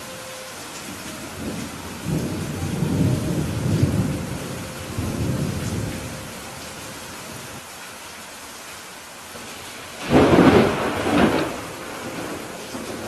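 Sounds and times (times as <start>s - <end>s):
rain hiss: 0.0s - 13.0s
thunder rumbling: 0.9s - 7.6s, 10.0s - 13.0s.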